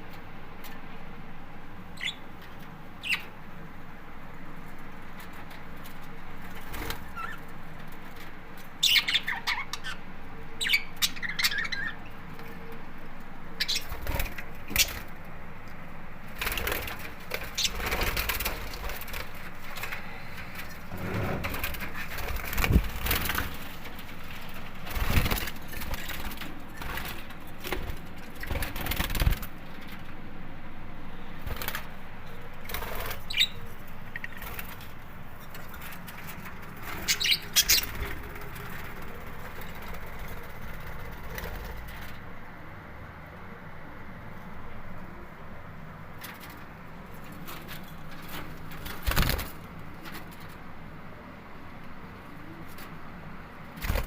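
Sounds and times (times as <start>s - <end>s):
bird chirps: 2.0s - 2.2s, 3.0s - 3.3s, 8.8s - 10.0s, 10.6s - 12.2s, 33.2s - 34.4s, 37.0s - 38.1s
birds flapping wings: 5.2s - 8.3s, 13.6s - 15.2s, 16.3s - 30.1s, 31.4s - 42.4s, 46.2s - 50.6s, 53.7s - 54.0s.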